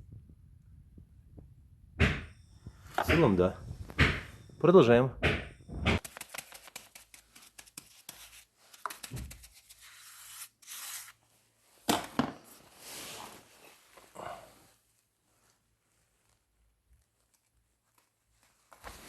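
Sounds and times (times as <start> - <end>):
sharp knock: 2.0 - 2.4, 3.0 - 3.4, 4.0 - 4.4, 5.2 - 6.0.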